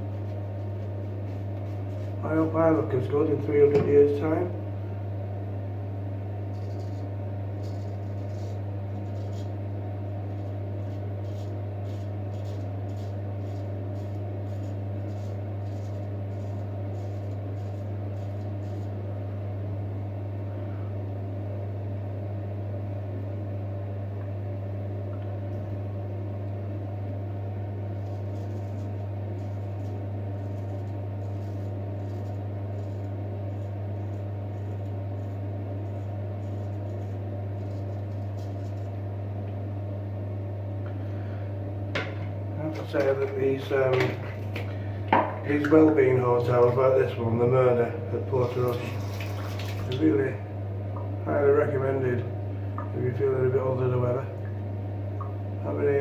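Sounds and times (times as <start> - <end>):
low mechanical hum: 0.0 - 56.0
razor scraping stubble: 6.5 - 9.6, 10.2 - 19.0, 27.9 - 39.0.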